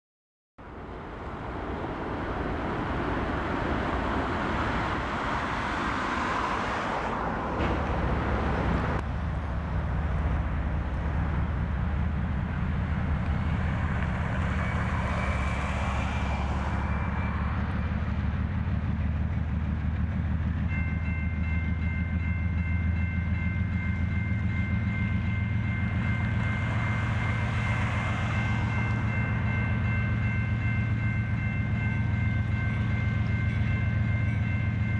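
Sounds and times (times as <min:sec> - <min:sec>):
freight train rolling: 0:00.6 - 0:34.9.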